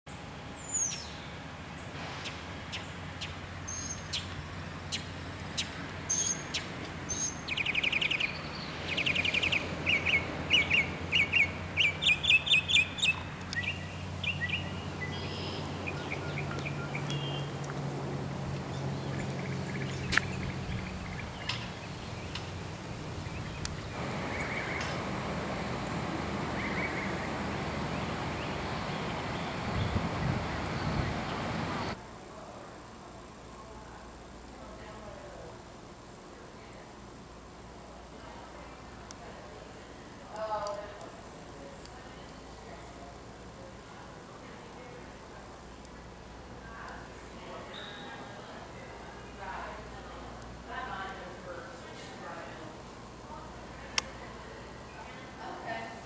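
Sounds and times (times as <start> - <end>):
songbirds singing and trilling: 0.1 - 32.0, 47.6 - 48.4
steady low hum: 0.1 - 56.0.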